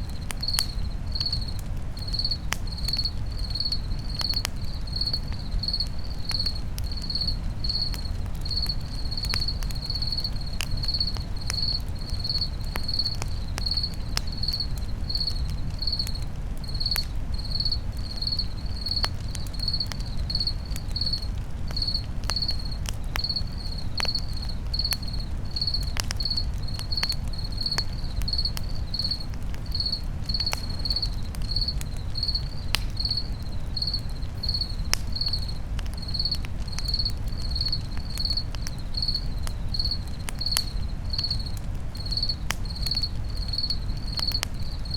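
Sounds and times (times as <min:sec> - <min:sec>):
campfire crackling and popping: 0:00.0 - 0:44.9
cricket chirping: 0:00.0 - 0:44.9.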